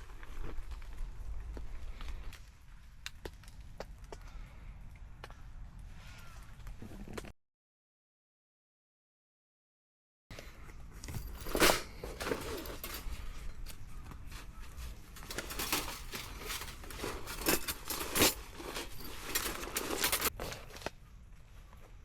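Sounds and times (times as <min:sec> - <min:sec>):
rustling and crinkling: 0:00.0 - 0:04.7, 0:10.4 - 0:22.0.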